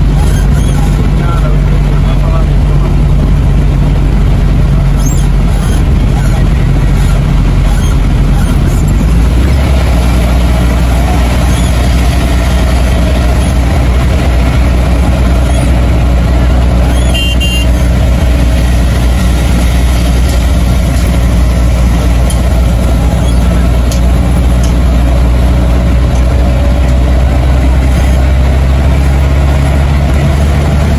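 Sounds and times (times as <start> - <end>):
car engine and road rumble: 0.0 - 30.9
high double beep: 16.9 - 17.7.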